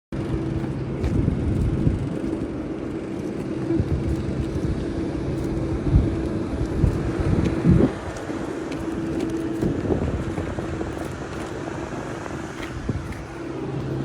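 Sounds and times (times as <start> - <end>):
engine drone: 0.1 - 14.0
rumbling noise: 0.1 - 14.0.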